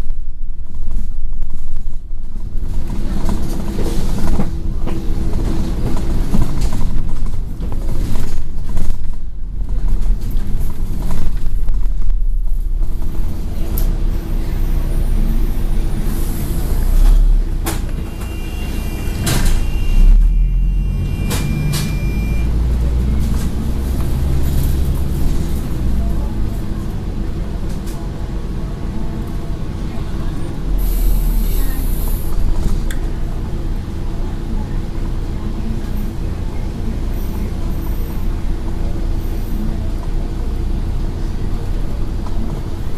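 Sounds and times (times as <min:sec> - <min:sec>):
bus engine running: 0:00.0 - 0:42.9
bus door: 0:13.2 - 0:25.7
air brake hiss: 0:30.8 - 0:32.4.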